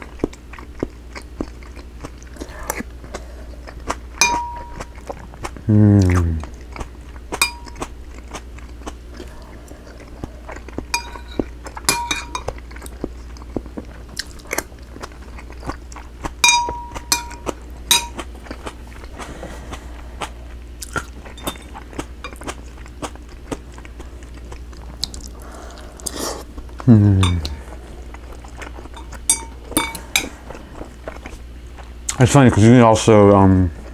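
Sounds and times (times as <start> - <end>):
person chewing: 0.0 - 32.2
utensils clinking on dish: 4.2 - 5.1, 7.4 - 7.9, 10.9 - 12.6, 16.4 - 18.7, 21.2 - 22.5, 27.2 - 27.6, 28.9 - 30.6.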